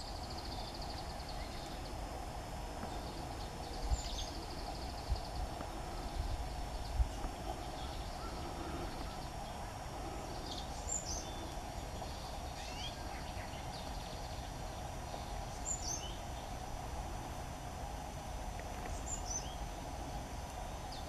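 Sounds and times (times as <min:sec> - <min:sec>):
outdoor background hum: 0:00.0 - 0:21.0
songbird chirps: 0:00.0 - 0:21.0.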